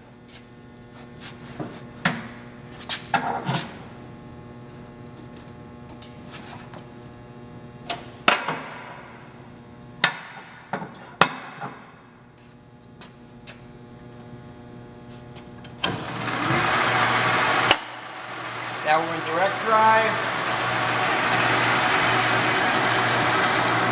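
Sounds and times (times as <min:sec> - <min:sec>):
lathe spindle whirring: 0:15.8 - 0:23.9.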